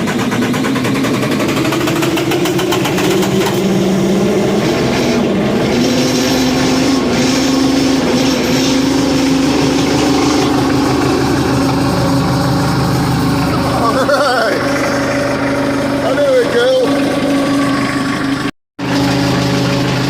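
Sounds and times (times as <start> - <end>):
diesel tractor engine running: 0.0 - 20.0.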